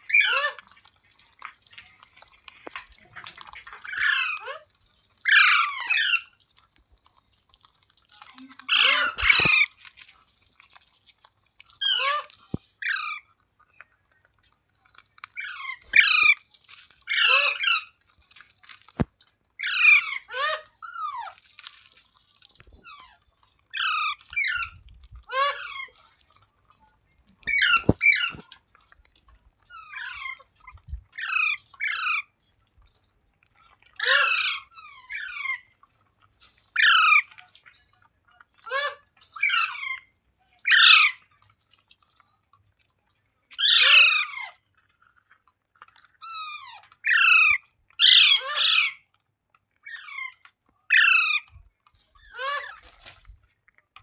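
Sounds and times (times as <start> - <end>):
parrot squawking: 0.0 - 0.6, 3.8 - 6.4, 8.7 - 9.8, 11.8 - 13.3, 15.3 - 18.0, 19.6 - 21.4, 22.8 - 26.0, 27.5 - 28.4, 29.7 - 30.5, 31.2 - 32.3, 34.0 - 35.7, 36.8 - 37.3, 38.6 - 40.0, 40.7 - 41.2, 43.6 - 44.5, 46.2 - 49.0, 49.8 - 51.5, 52.3 - 52.9.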